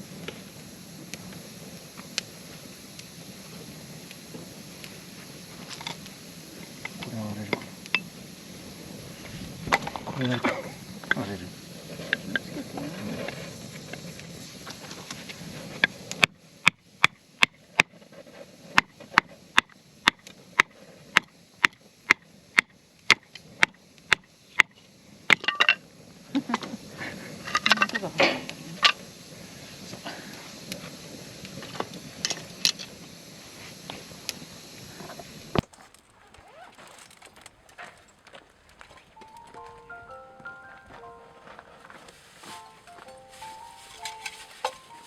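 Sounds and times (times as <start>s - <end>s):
split wood clattering: 43.3s - 45.0s.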